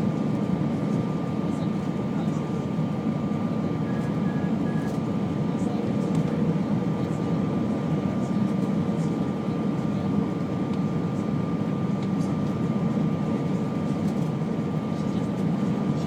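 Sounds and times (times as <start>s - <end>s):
engine and airflow rush: 0.0s - 16.0s.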